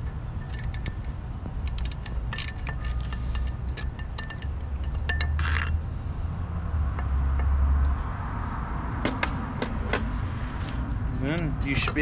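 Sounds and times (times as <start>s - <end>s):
sharp metallic clicks: 0.0s - 5.8s.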